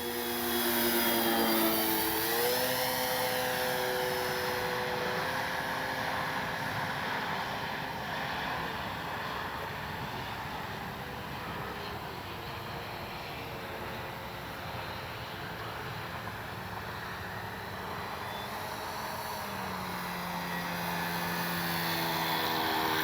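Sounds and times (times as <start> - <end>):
model plane propeller drone: 0.0 - 23.0.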